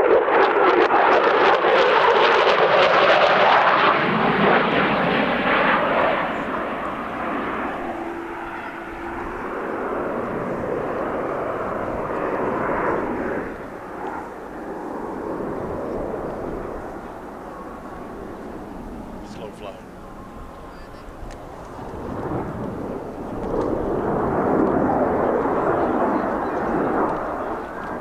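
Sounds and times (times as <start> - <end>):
aircraft flying past: 0.0 - 28.0.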